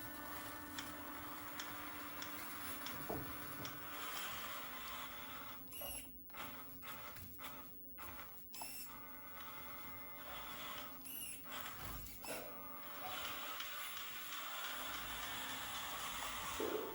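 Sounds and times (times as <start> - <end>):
electric motor whine: 10.2 - 16.9.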